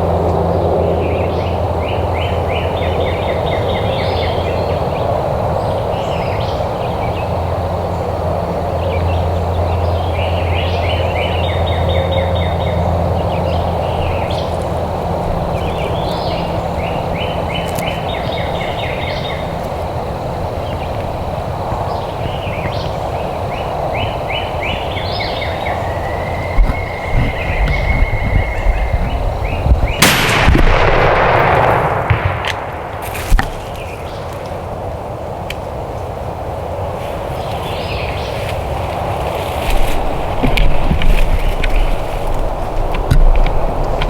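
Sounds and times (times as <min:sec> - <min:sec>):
songbirds trilling: 0:00.0 - 0:44.0
low rumble: 0:25.7 - 0:34.2.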